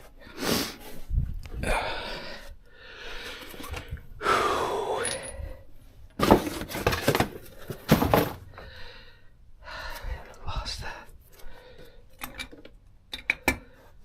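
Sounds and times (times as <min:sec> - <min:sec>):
metal tools clinking: 0:05.0 - 0:05.6.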